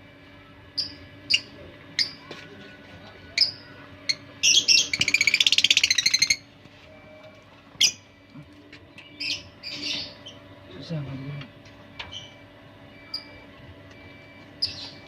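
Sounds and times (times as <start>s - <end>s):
lovebirds chirping and chattering: 0.8s - 2.3s, 3.3s - 6.4s, 7.8s - 8.1s, 9.0s - 10.5s, 14.6s - 15.0s.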